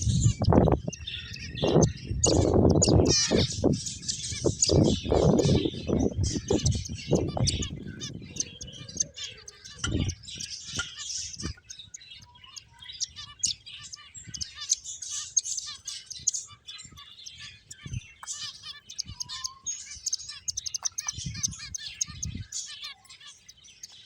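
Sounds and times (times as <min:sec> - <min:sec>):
finches chirping: 0:00.0 - 0:24.0.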